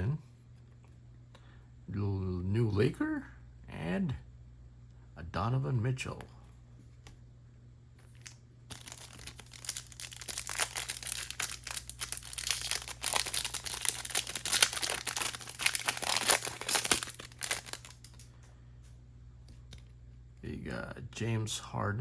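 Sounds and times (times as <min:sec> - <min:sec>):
foil wrapper crinkling and tearing: 0:08.1 - 0:18.3.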